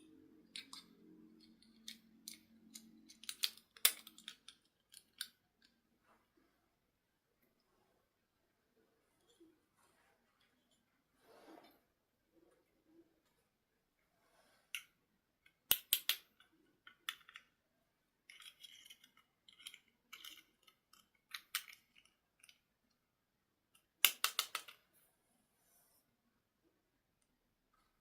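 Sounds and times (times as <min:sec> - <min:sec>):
plastic toy parts clicking: 0:00.4 - 0:05.8, 0:14.7 - 0:17.6, 0:18.2 - 0:22.7, 0:23.8 - 0:24.8.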